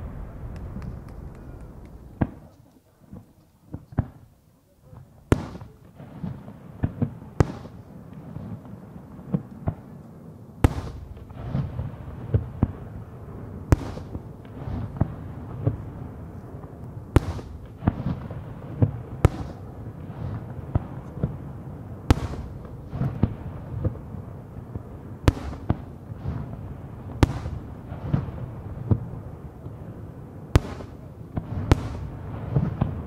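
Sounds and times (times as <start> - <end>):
rumble of echoes: 0.0 - 2.5
firework shells bursting: 0.0 - 2.8.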